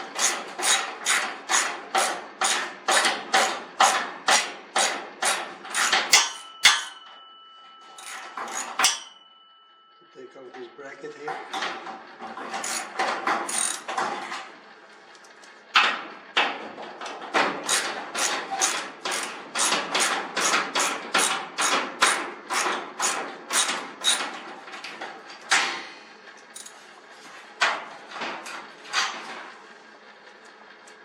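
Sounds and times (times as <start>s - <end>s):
sharp metallic knocks: 2.0s - 9.4s.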